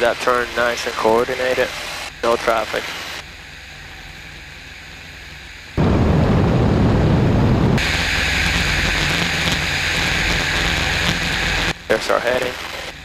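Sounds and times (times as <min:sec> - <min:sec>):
aircraft engine hum: 0:02.6 - 0:11.9
wind rushing on microphone: 0:05.8 - 0:08.0.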